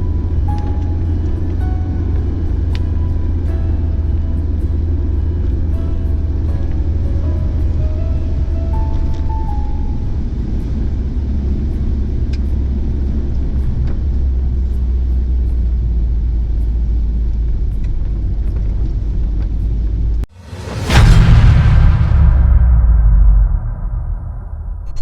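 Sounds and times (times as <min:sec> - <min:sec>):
car engine rumble from inside: 0:00.0 - 0:20.3
loud noisy burst: 0:20.3 - 0:25.0.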